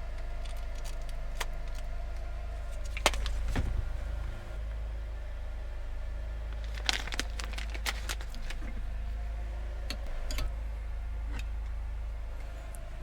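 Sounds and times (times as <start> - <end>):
generator humming: 0.0 - 13.0
packaging crinkling: 0.2 - 1.9, 2.7 - 4.3, 6.6 - 8.7.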